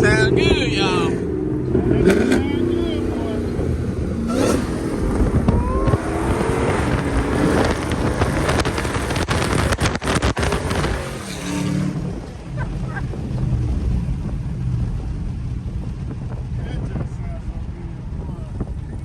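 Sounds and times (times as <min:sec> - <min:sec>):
car engine revving hard: 0:00.0 - 0:14.9
wind rushing over microphone: 0:00.0 - 0:19.0.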